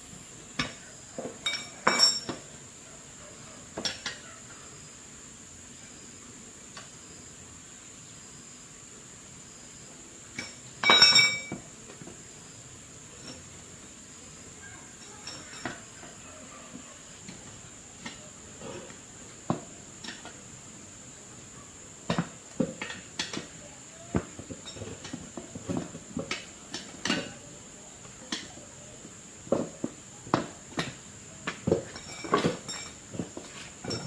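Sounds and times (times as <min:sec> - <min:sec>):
small metal objects clinking: 0:10.4 - 0:11.6.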